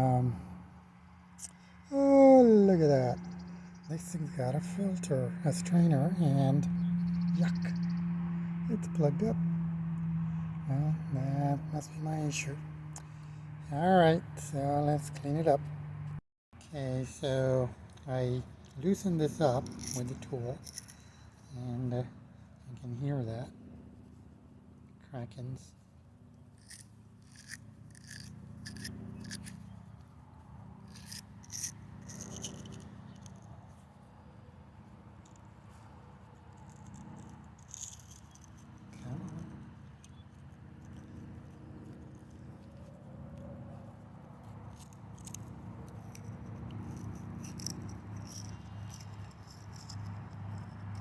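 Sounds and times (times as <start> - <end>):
crackling clicks of unscrewing fitting: 19.6 - 21.5, 26.6 - 29.7, 30.9 - 33.6, 35.2 - 35.5, 36.4 - 43.5, 44.4 - 51.0.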